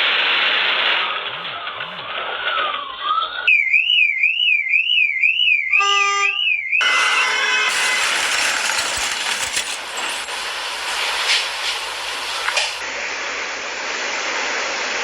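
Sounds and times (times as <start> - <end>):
traffic noise: 6.8 - 13.4.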